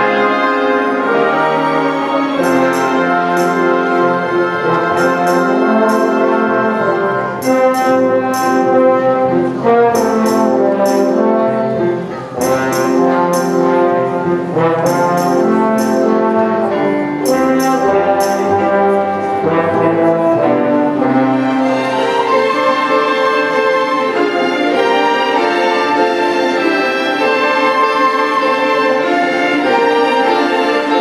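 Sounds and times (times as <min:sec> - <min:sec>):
orchestra brass chords: 0:00.0 - 0:31.0
bright percussion strikes: 0:02.4 - 0:04.0, 0:04.8 - 0:06.8, 0:07.4 - 0:09.0, 0:10.0 - 0:11.4, 0:12.4 - 0:13.9, 0:14.7 - 0:16.4, 0:17.2 - 0:18.8.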